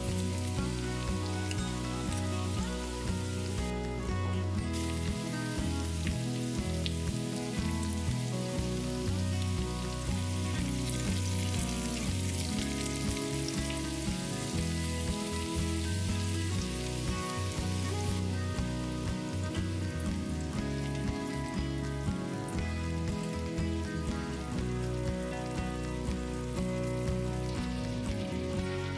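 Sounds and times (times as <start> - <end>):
background music with bass: 0.0 - 28.9
vegetables sizzling in oil: 0.0 - 28.9.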